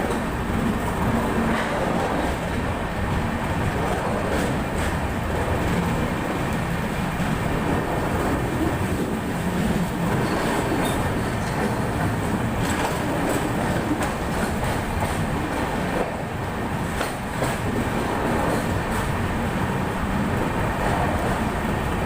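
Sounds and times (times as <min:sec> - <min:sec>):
train rumbling along track: 0:00.0 - 0:22.0.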